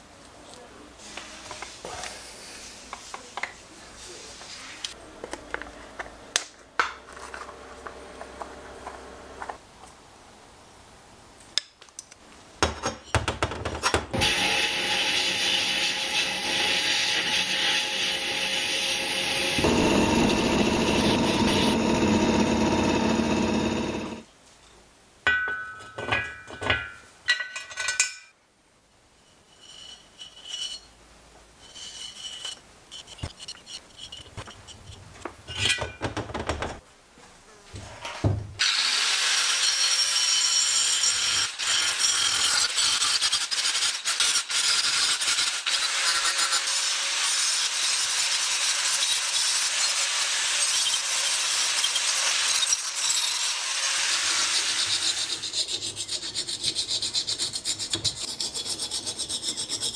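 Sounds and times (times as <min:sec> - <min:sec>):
power tool running: 0:14.2 - 0:24.2
abrasive rubbing rasp: 0:54.4 - 0:59.9.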